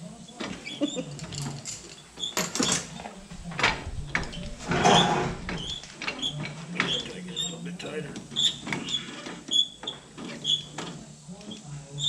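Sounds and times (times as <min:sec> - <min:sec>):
metal scrape: 0:02.8 - 0:05.9.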